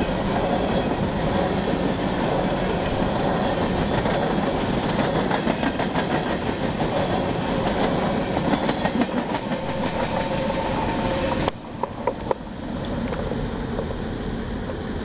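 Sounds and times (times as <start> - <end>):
train wheels clattering over joints: 1.4 - 12.4.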